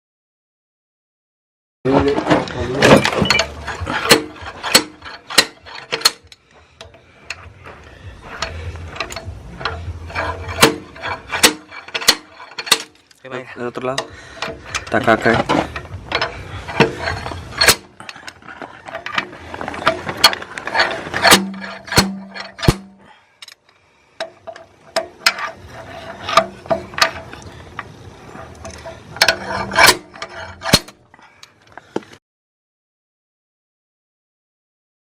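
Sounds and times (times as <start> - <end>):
metallic clicks of hand tools: 8.4 - 13.2.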